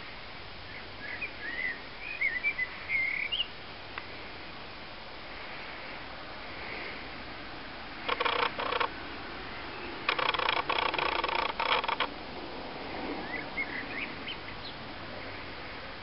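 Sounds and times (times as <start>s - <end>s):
bird chattering call: 8.1s - 9.0s, 10.0s - 12.1s.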